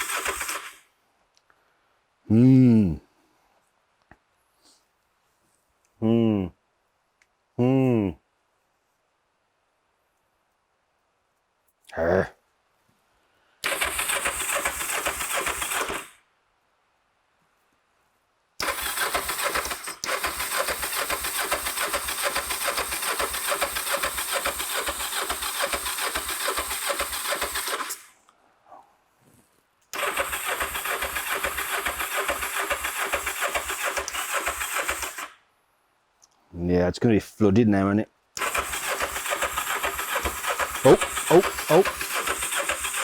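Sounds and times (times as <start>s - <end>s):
starter cranking engine: 0.0s - 0.8s, 13.6s - 16.2s, 18.6s - 28.1s, 29.9s - 35.4s, 38.4s - 43.0s.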